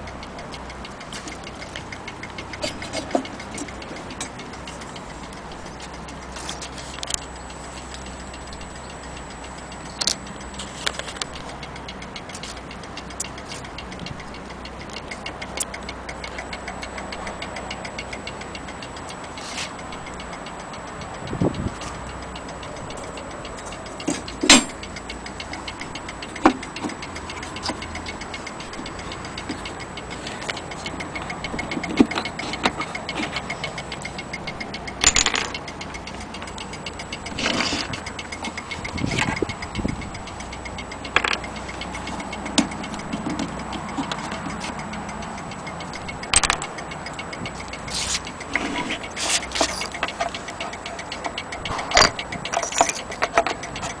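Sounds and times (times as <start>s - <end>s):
clock ticking: 0.0s - 54.0s
knocks and clicks: 22.7s - 54.0s.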